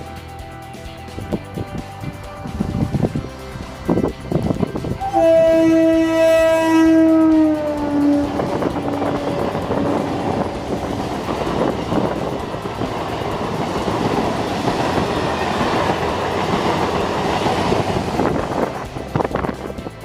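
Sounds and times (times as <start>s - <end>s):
train wheels clacking on rails: 4.4s - 20.0s.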